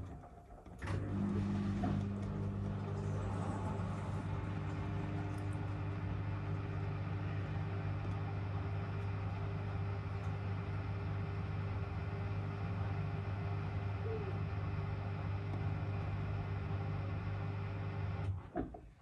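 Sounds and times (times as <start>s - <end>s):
washing machine motor hum: 0.0s - 19.0s.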